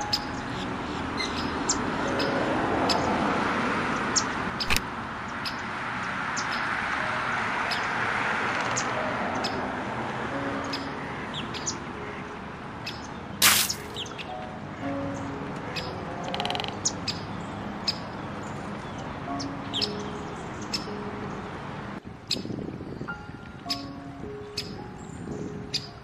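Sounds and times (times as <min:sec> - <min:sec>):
distant road traffic: 0:00.0 - 0:26.0
small birds chirping: 0:12.8 - 0:14.4, 0:16.8 - 0:21.4
sharp click: 0:13.4 - 0:14.0.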